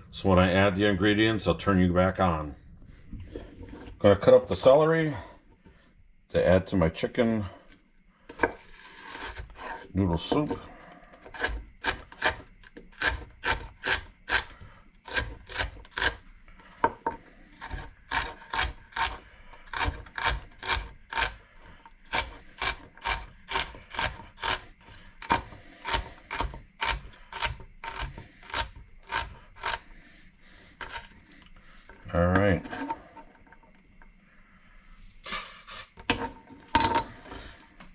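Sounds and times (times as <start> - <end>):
knife chopping celery on board: 11.3 - 14.5, 15.1 - 16.2, 17.6 - 21.4, 25.2 - 29.8.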